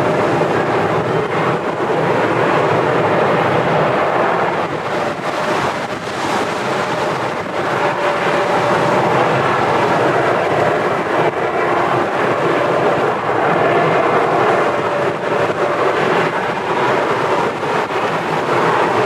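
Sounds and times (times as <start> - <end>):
jet engines whining: 0.0 - 19.0
wind buffeting microphone: 0.0 - 19.0.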